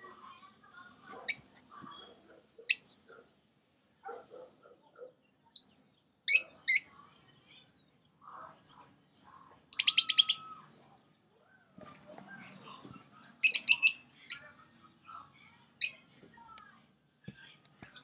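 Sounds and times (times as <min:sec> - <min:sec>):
lovebirds chirping: 0:09.7 - 0:10.6, 0:13.4 - 0:14.6.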